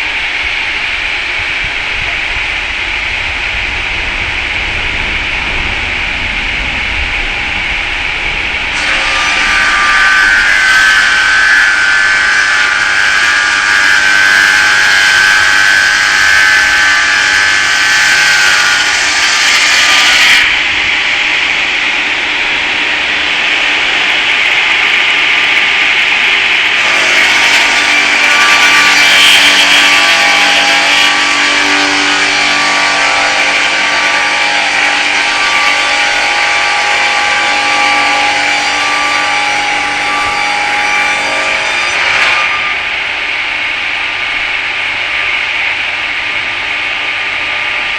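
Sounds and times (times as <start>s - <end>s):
circular saw blade cutting log: 8.6s - 43.1s.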